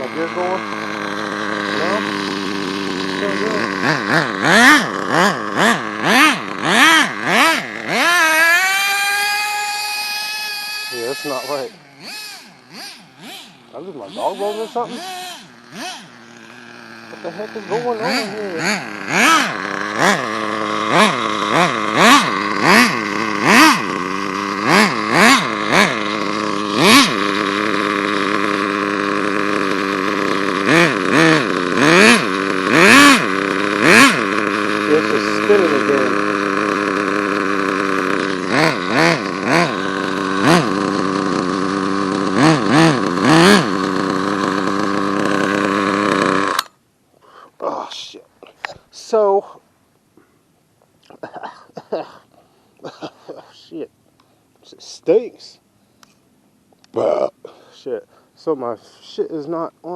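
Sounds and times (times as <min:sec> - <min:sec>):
model truck nitro engine revving: 0:00.0 - 0:46.8.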